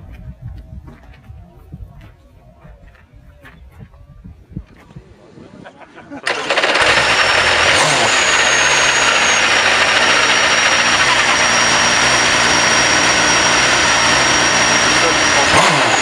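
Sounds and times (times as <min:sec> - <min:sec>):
car engine idling loudly: 0:06.3 - 0:16.0
thin high whine: 0:06.6 - 0:16.0.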